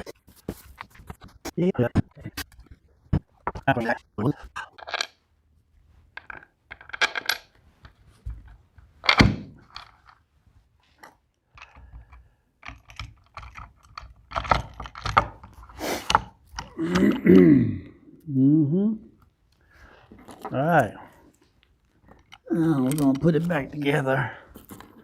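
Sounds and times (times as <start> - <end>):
metal parts and tools clinking: 4.6 - 5.2, 6.2 - 7.5, 22.0 - 25.0.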